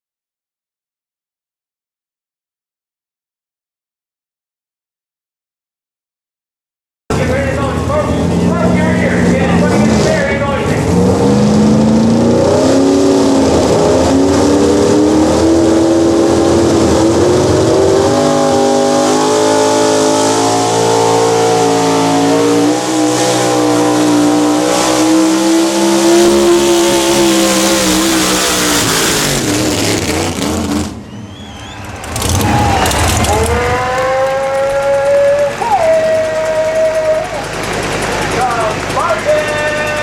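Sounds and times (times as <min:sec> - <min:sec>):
truck engine at high revs: 0:07.1 - 0:40.0
another engine revving: 0:08.2 - 0:40.0.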